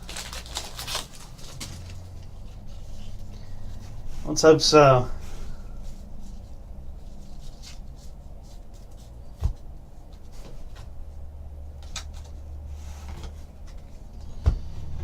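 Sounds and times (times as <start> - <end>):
cards and wrapper rustling: 0.0 - 3.9
low hum: 0.0 - 15.0.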